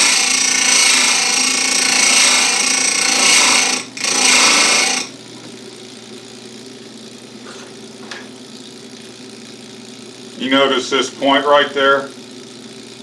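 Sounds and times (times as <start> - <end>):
grinding wheel grinding chain: 0.0 - 5.1
grinder motor humming: 0.0 - 13.0.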